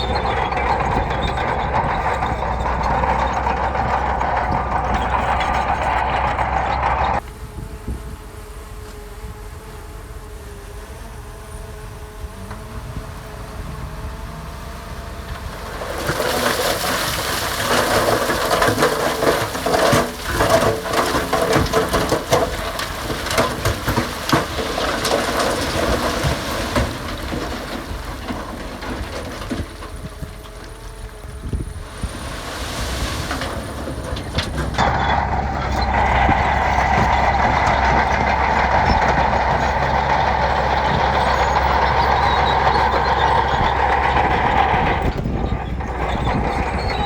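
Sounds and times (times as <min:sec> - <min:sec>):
earthmoving machine engine running: 0:00.0 - 0:47.0
gravel and stone crunching: 0:12.8 - 0:47.0.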